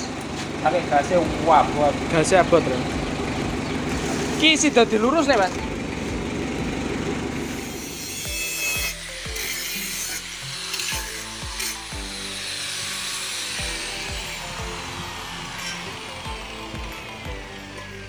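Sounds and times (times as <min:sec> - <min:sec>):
engine running: 0:00.0 - 0:18.0
angle grinder cutting metal pipe: 0:07.3 - 0:18.0.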